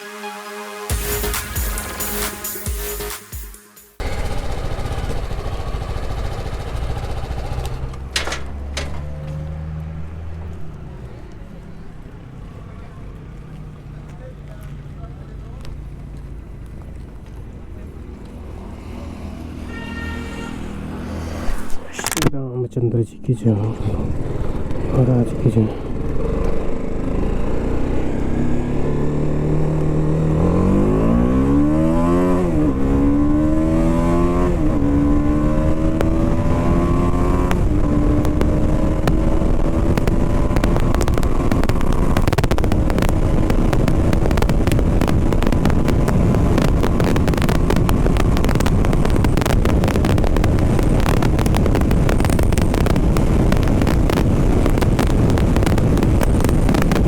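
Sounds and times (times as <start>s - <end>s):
motorcycle engine accelerating: 4.0s - 19.6s, 23.7s - 57.0s
wind rush on microphone: 33.6s - 57.0s.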